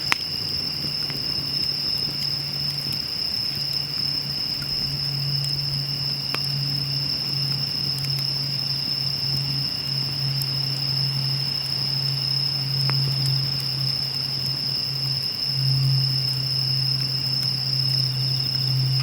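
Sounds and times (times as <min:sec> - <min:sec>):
fire popping: 0:00.0 - 0:10.8, 0:17.0 - 0:19.0
campfire crackling: 0:00.0 - 0:19.0
insect chorus: 0:00.0 - 0:19.0
low hum: 0:18.2 - 0:19.0.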